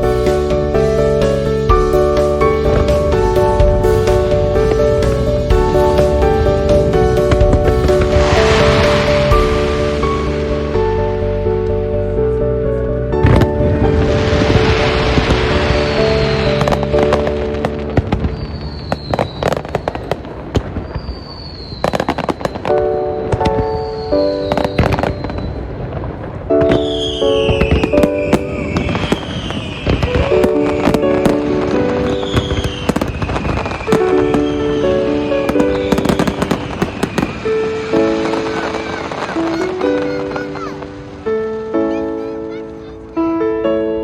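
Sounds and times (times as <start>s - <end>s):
fireworks banging and crackling: 0.0s - 11.8s, 13.2s - 43.1s
music with held chords: 0.0s - 18.3s
falling firework whistles: 17.6s - 22.7s, 23.6s - 25.8s, 26.8s - 31.4s, 32.0s - 40.1s.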